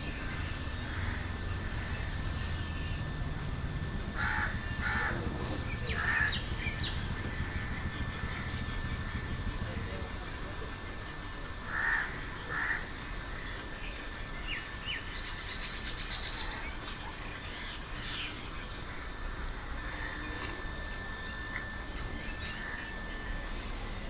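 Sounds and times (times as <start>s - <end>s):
bird chirps and ticking trill: 0.1s - 9.5s
bird cawing harshly: 4.2s - 5.2s, 5.8s - 7.8s, 11.7s - 12.9s.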